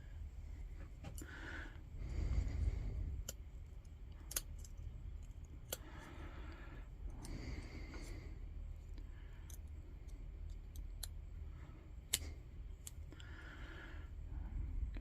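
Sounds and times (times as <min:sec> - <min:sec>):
faint low hum: 0:00.0 - 0:15.0
small parts clicking and tapping: 0:03.2 - 0:06.0, 0:08.9 - 0:11.2.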